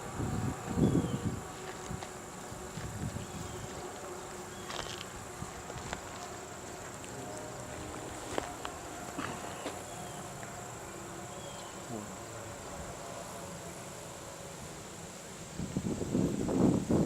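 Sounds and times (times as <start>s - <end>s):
wind on microphone: 0.0s - 3.9s, 15.5s - 17.0s
insects buzzing: 0.0s - 17.0s.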